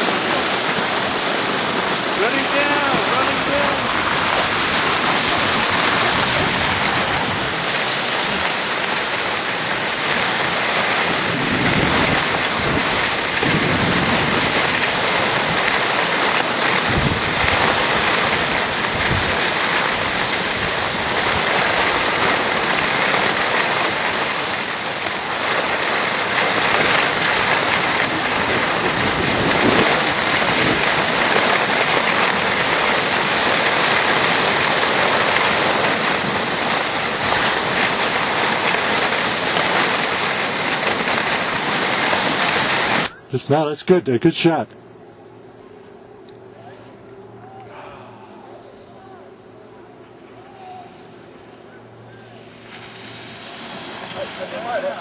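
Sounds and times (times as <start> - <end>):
wind rushing over microphone: 0.0 - 23.5, 26.4 - 38.2
skis scraping on snow: 0.0 - 43.1, 52.2 - 55.0.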